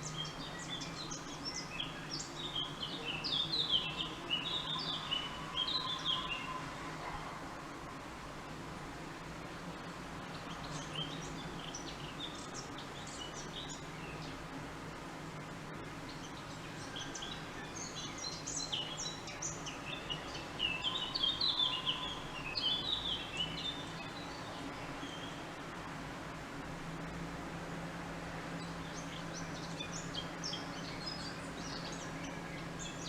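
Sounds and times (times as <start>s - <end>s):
small songbirds chirping: 0.0s - 7.3s, 9.2s - 25.9s, 28.2s - 33.0s.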